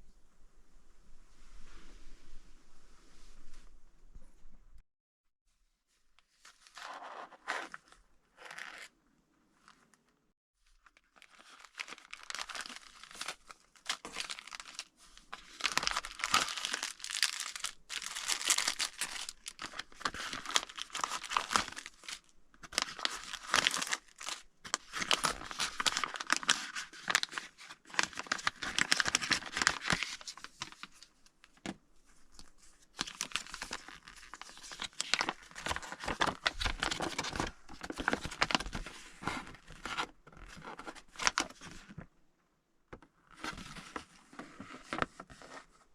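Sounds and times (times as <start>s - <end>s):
plastic packaging crinkling: 10.8s - 31.0s, 32.3s - 38.9s.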